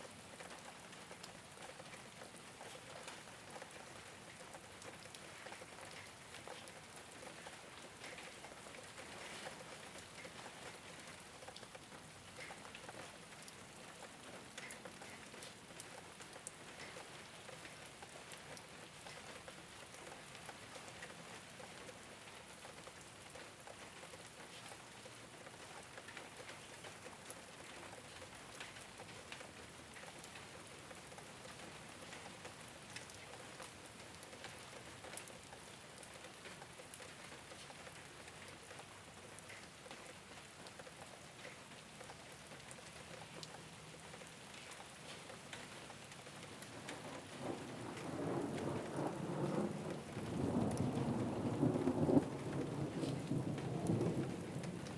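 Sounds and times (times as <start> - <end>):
rain on a rooftop: 0.0 - 54.9
thunder rumbling: 46.8 - 54.9.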